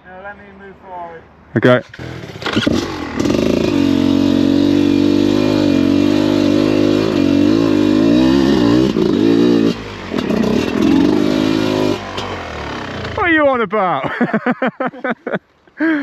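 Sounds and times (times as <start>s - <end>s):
motorcycle engine revving: 1.8s - 13.3s.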